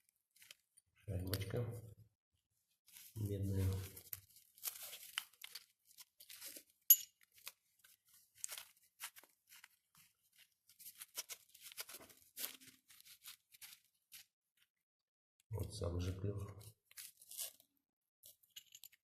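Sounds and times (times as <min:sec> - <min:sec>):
metal parts clicking and scraping: 0:18.4 - 0:19.0.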